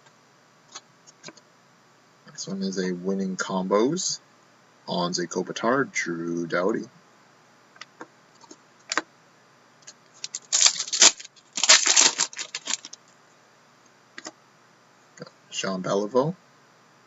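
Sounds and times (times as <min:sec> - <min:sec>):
cards rustling and flicking: 0:10.2 - 0:13.0.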